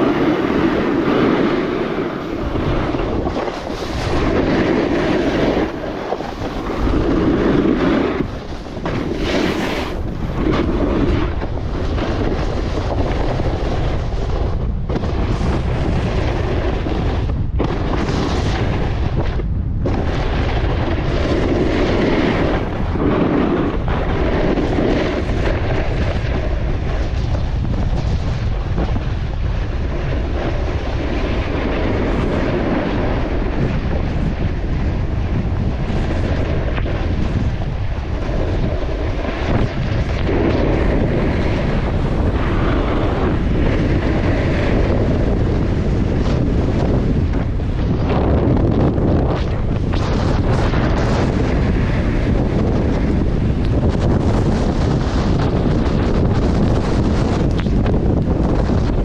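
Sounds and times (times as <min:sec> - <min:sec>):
strong wind buffeting microphone: 0:00.0 - 0:59.0.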